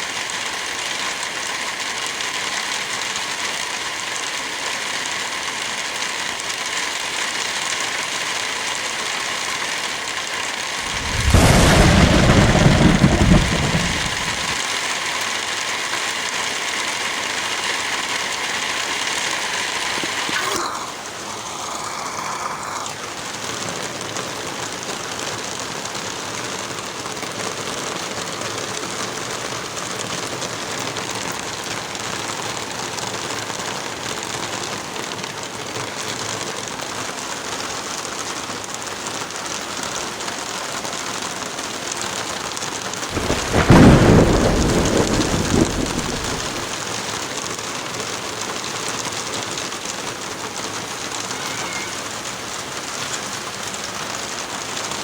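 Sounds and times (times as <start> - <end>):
heavy rain falling: 0.0 - 55.0
thunderclap rumbling: 10.8 - 14.6, 43.1 - 46.8.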